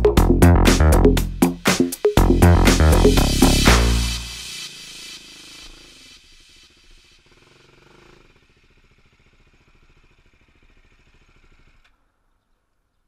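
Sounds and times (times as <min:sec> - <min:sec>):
dirt bike engine idling: 0:00.1 - 0:12.7.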